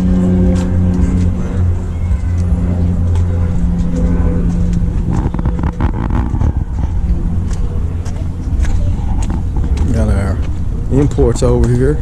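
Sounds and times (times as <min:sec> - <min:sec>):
scratchy rustling: 0:04.6 - 0:07.6, 0:08.6 - 0:09.9.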